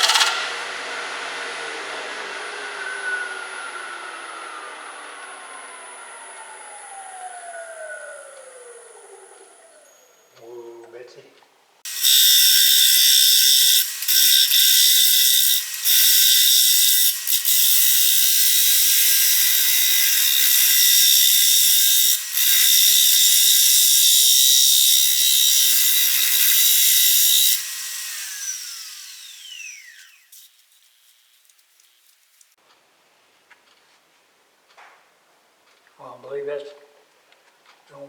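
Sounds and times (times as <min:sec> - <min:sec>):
lathe motor whine: 0:00.0 - 0:10.3, 0:11.9 - 0:30.7
lathe tool cutting wood hiss: 0:11.9 - 0:32.5.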